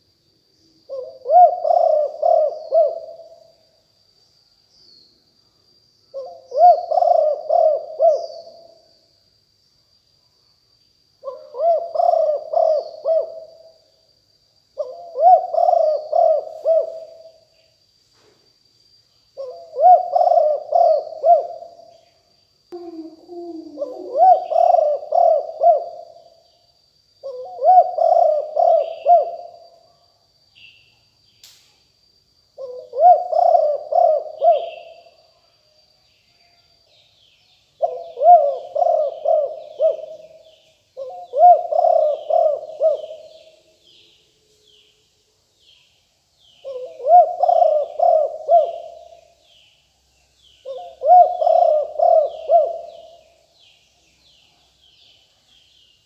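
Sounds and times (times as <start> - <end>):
dove cooing: 0.9 - 3.4, 6.1 - 8.7, 11.2 - 13.7, 14.8 - 17.4, 19.4 - 21.8, 22.8 - 26.2, 27.2 - 29.6, 32.6 - 35.1, 37.8 - 43.6, 46.6 - 49.4, 50.6 - 53.4.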